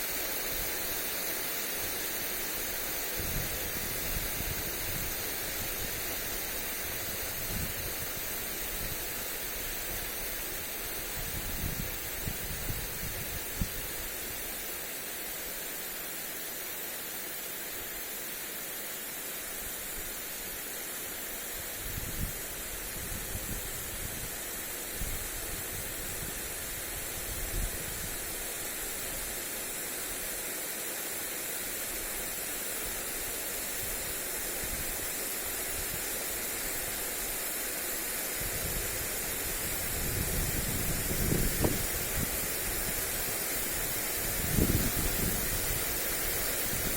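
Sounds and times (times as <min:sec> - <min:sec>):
sprinkler spray hissing on grass: 0:00.0 - 0:46.9
wind buffeting microphone: 0:38.4 - 0:46.9.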